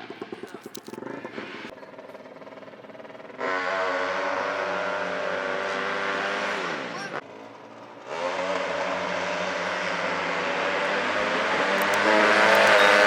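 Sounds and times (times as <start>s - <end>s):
racing engine revving high: 3.2s - 7.2s, 8.0s - 13.0s.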